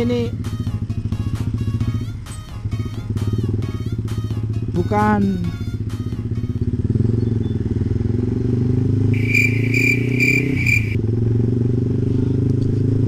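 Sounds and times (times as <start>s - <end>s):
motorcycle engine running: 0.0s - 13.0s
short high beeps: 9.2s - 11.0s.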